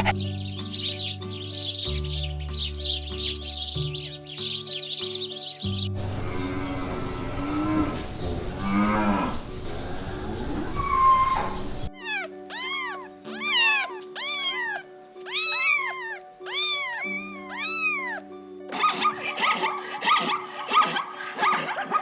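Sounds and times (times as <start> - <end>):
background music: 0.0 - 22.0
kitten meowing: 12.0 - 18.3.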